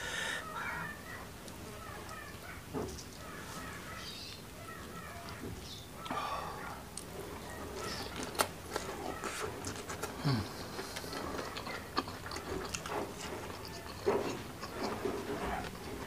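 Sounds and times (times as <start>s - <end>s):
chewing food: 4.0s - 16.0s.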